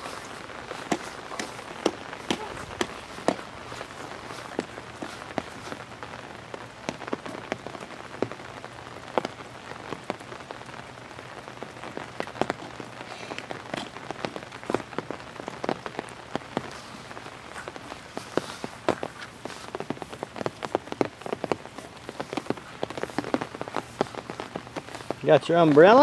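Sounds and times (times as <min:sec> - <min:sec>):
raindrops tapping an umbrella: 0:00.0 - 0:26.0
steady rain falling: 0:00.0 - 0:26.0.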